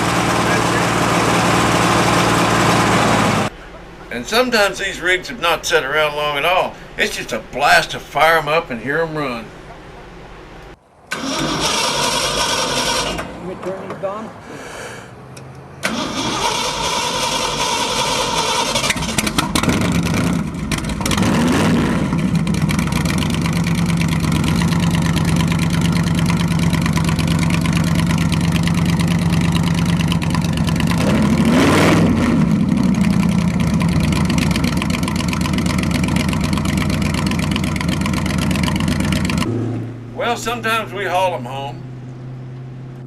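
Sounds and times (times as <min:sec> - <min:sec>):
engine idling and revving: 0:00.0 - 0:03.6, 0:11.1 - 0:14.2, 0:15.2 - 0:43.0
engine cranking on starter: 0:11.1 - 0:13.4, 0:15.8 - 0:21.7, 0:22.3 - 0:39.6.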